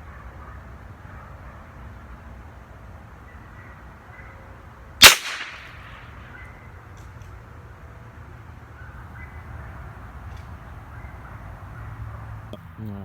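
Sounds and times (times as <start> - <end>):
rifle shot with echo: 5.0 - 6.3.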